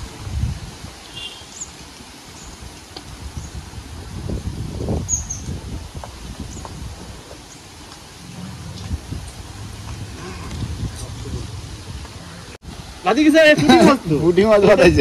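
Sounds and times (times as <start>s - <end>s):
low rustling rumble: 3.1s - 13.0s.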